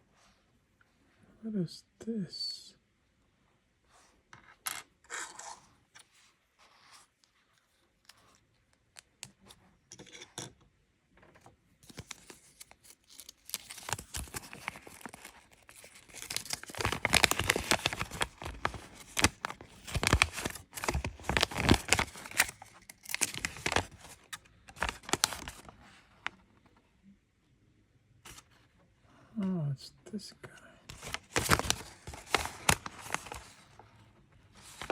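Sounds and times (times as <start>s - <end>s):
plastic pack crinkling: 11.8s - 25.8s, 30.9s - 33.7s, 34.6s - 34.9s.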